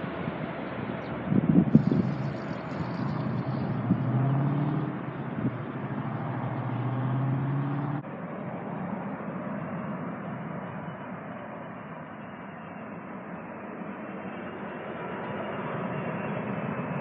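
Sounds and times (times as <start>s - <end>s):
jet engines rumbling: 0.0s - 17.0s
wind on microphone: 1.1s - 6.7s.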